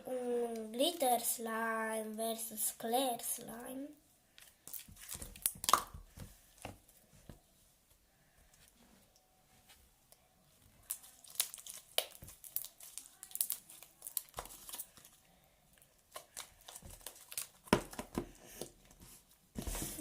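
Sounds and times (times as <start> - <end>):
slime crackling and popping: 4.5 - 6.1, 10.8 - 15.2, 16.1 - 18.2.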